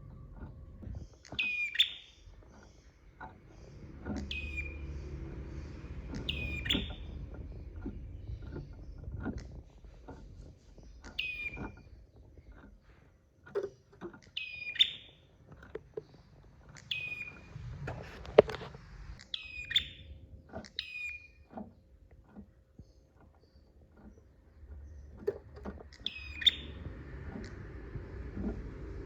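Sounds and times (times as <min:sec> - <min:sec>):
clicks and knocks: 0:00.0 - 0:14.7, 0:21.4 - 0:29.0
bird sharp high chirps: 0:01.2 - 0:02.2, 0:04.2 - 0:04.8, 0:06.1 - 0:07.2, 0:11.1 - 0:11.8, 0:14.4 - 0:15.2, 0:16.8 - 0:17.5, 0:19.2 - 0:20.1, 0:25.9 - 0:26.8.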